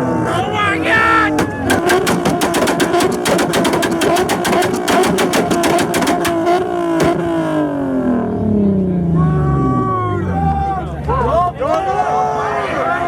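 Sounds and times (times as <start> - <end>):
car engine revving and popping: 1.4 - 8.4.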